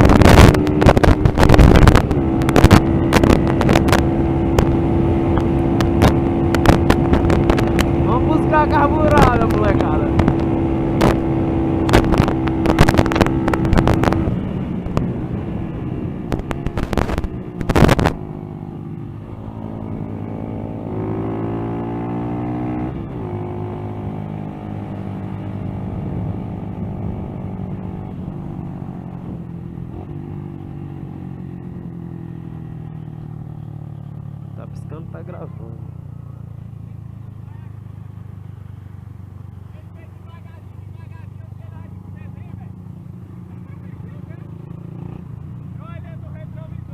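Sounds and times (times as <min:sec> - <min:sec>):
wind buffeting microphone: 0:00.0 - 0:31.5
motorcycle engine running: 0:00.0 - 0:46.9.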